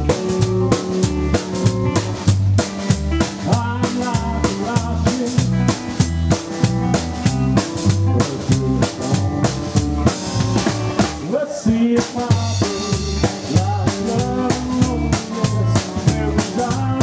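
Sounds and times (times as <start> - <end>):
lead guitar melody: 0.0 - 11.2
double bass line: 0.0 - 17.0
drum kit beat: 0.0 - 17.0.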